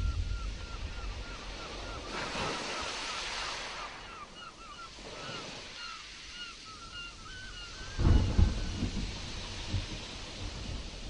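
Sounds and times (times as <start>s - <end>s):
thunder rumbling: 0.0s - 2.2s, 8.0s - 11.0s
rain hiss: 0.0s - 11.0s
surf: 0.0s - 11.0s.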